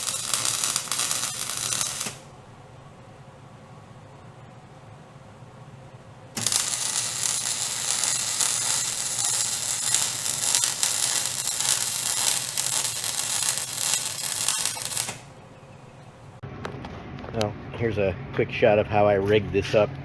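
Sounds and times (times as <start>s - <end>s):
welder arc crackling: 0.0s - 2.4s, 6.4s - 15.4s.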